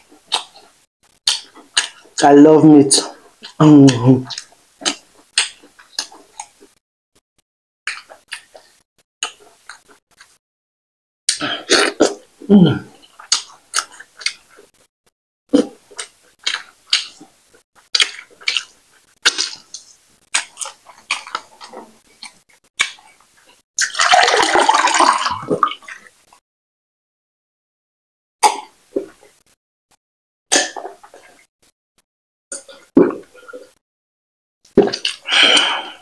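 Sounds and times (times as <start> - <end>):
throaty vocal sound: 11.3 - 13.0, 34.8 - 36.0
close-miked chewing: 13.0 - 14.9, 15.5 - 24.0
water pouring into a glass: 23.8 - 26.0.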